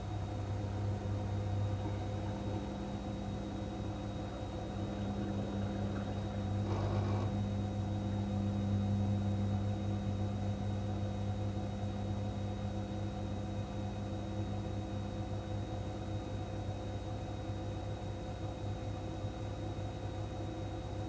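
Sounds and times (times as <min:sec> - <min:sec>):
washing machine motor hum: 0:00.0 - 0:08.8.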